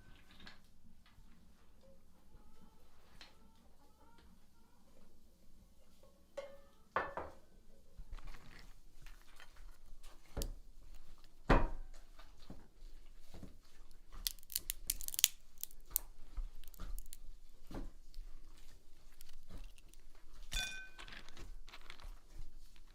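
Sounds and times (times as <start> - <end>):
tearing and crunching: 13.8 - 22.9
sharp crackles: 13.9 - 17.3.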